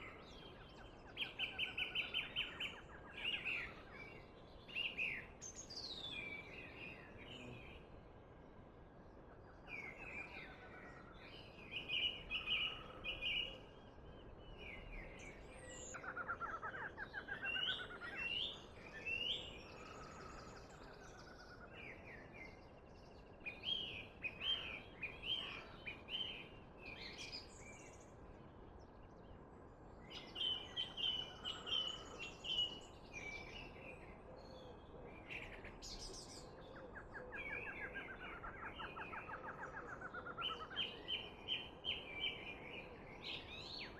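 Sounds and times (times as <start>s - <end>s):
songbirds singing: 0.0s - 8.1s, 9.4s - 43.9s.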